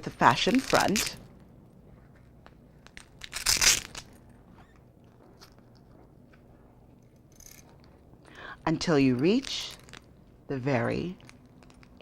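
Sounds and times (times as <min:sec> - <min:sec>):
velcro strap ripping: 0:00.4 - 0:01.2, 0:02.8 - 0:04.2.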